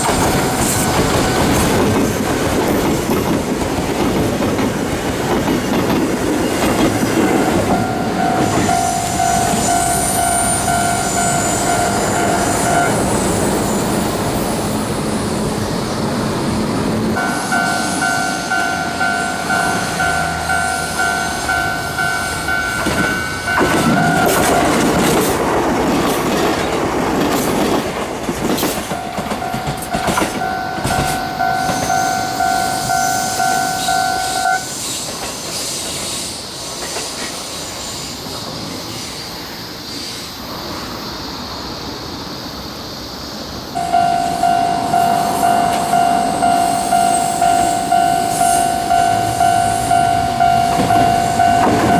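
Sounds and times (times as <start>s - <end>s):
level crossing bell ringing: 0.0s - 1.8s, 6.9s - 13.3s, 17.2s - 25.2s, 28.8s - 34.7s, 43.8s - 51.9s
train wheels clattering: 0.0s - 14.4s, 16.7s - 38.6s, 43.8s - 51.9s.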